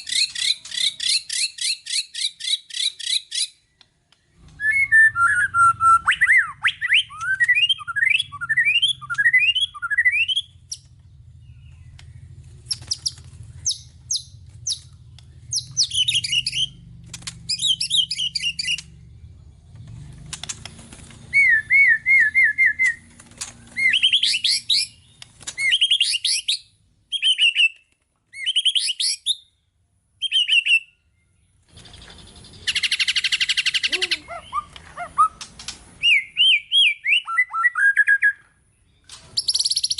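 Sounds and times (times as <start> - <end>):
bird singing varied whistled song: 4.3 - 16.8, 17.4 - 19.0, 21.3 - 23.1, 23.7 - 35.4, 36.0 - 39.9
harsh buzzing rattle: 10.5 - 19.2.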